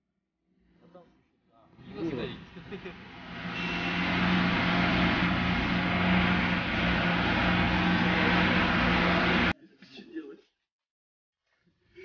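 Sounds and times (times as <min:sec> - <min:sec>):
vehicle engine running: 0:01.8 - 0:09.5.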